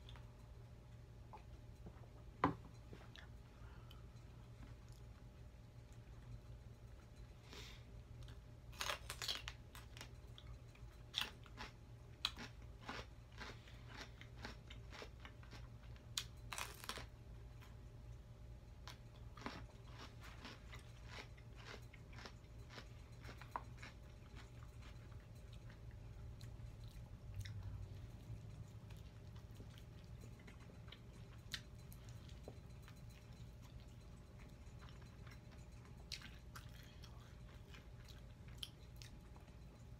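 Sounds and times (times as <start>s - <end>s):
crunching celery: 8.7s - 10.1s, 10.8s - 17.2s, 18.9s - 25.4s.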